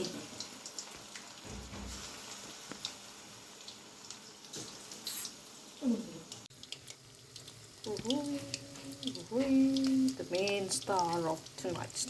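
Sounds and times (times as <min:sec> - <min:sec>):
chicken sizzling in hot oil: 0:00.0 - 0:12.0
oil crackling and popping: 0:00.0 - 0:12.0.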